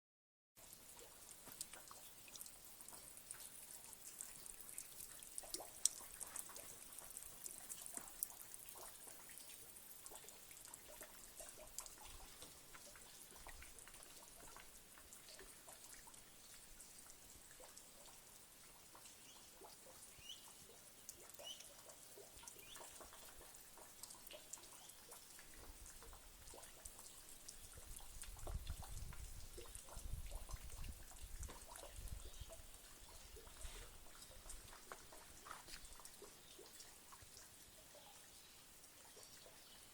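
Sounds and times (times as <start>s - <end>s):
water dripping and trickling: 0.6s - 39.9s.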